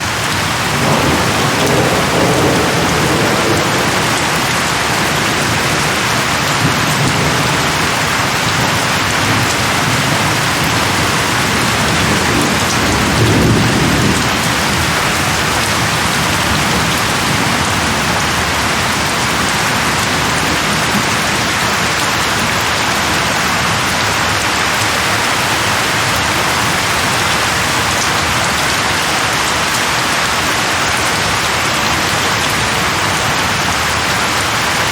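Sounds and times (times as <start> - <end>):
heavy rain: 0.0 - 34.9
distant thunder rolls: 0.1 - 21.4, 24.8 - 28.1.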